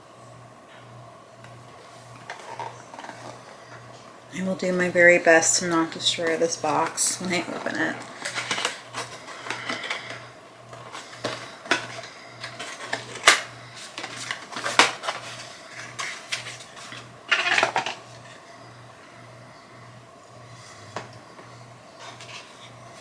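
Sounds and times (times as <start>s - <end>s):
packaging rustle: 1.8s - 3.9s, 5.8s - 18.4s
packaging clicks and scrapes: 2.2s - 3.8s, 5.8s - 18.4s, 22.0s - 23.0s
packaging snaps: 7.6s - 18.0s.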